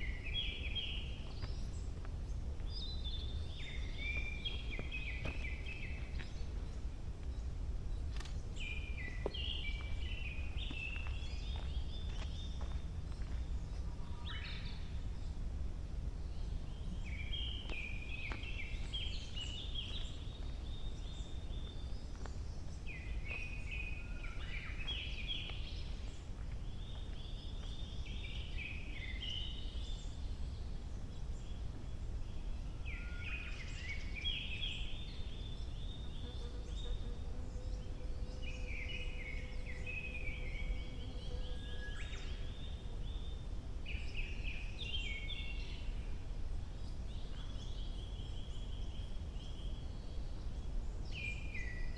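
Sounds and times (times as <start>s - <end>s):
low background rumble: 0.0s - 51.5s
songbird twittering: 2.6s - 15.3s.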